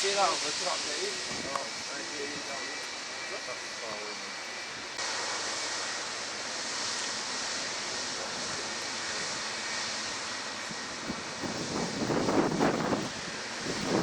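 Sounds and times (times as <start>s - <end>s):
jet engines rushing: 0.0s - 14.0s
wind buffeting microphone: 0.6s - 2.0s, 8.2s - 14.0s.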